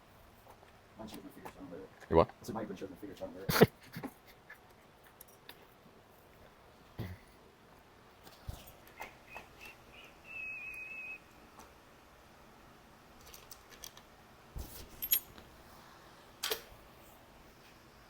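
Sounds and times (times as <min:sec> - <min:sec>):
high whistling squeak: 0:09.6 - 0:11.2
tools and metal parts clicking: 0:13.2 - 0:14.0, 0:14.7 - 0:15.4.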